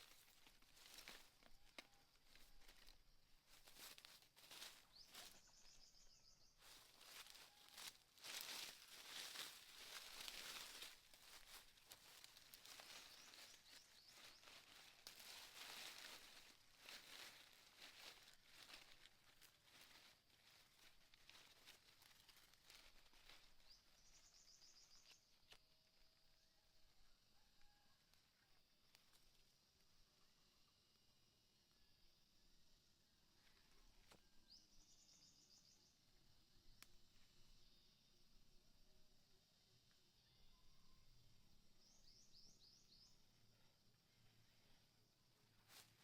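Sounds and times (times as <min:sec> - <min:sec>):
faint rustles: 0:00.0 - 0:25.6.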